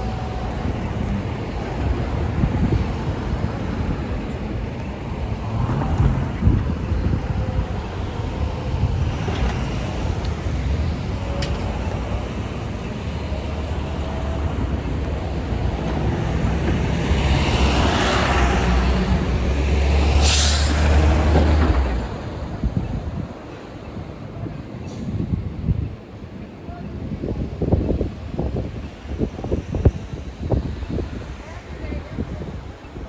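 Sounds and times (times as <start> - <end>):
bus engine drone passing: 0.0 - 26.4
air brakes hissing: 20.1 - 20.9.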